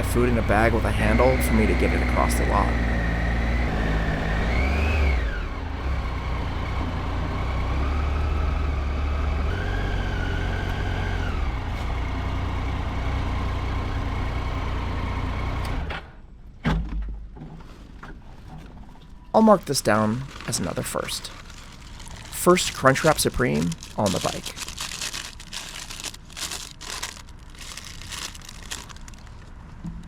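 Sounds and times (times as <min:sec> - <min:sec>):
motorcycle engine with whine: 0:00.0 - 0:16.2.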